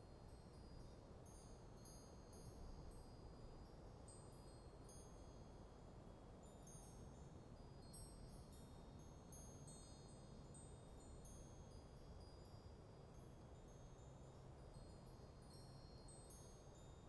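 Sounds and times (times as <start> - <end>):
metal wind chimes tinkling: 6.4 - 17.0.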